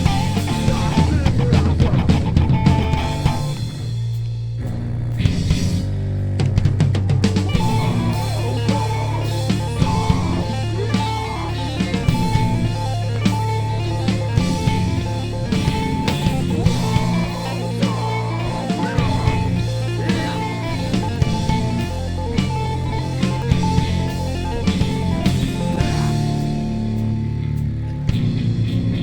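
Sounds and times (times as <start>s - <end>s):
rock band playing: 0.0s - 29.0s.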